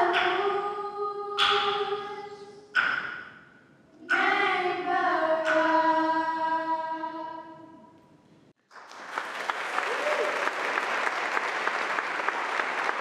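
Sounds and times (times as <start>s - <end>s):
women singing together: 0.0s - 2.7s, 4.0s - 7.8s
applause: 8.6s - 13.0s.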